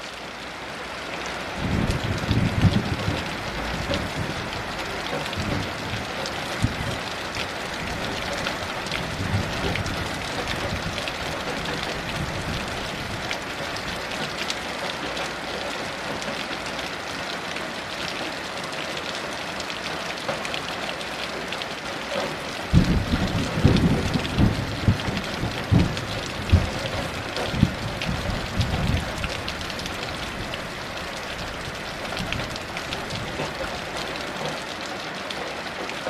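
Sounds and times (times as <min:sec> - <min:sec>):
heavy rain hissing and pattering: 0:00.0 - 0:36.0
low thunder rumble: 0:01.6 - 0:07.0, 0:07.8 - 0:14.0, 0:22.7 - 0:30.8.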